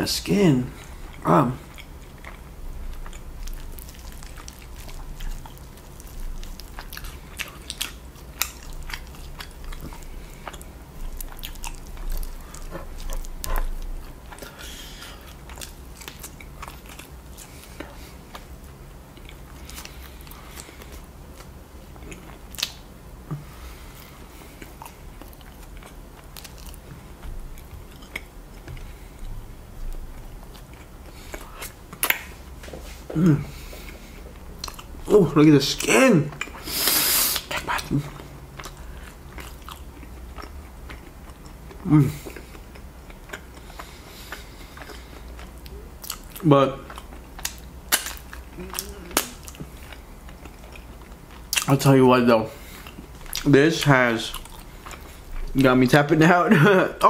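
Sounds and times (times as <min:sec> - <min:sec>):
chewing and biting chicken: 0:00.8 - 0:22.8, 0:35.7 - 0:52.0
wet mouth clicks and smacks: 0:47.0 - 0:49.7.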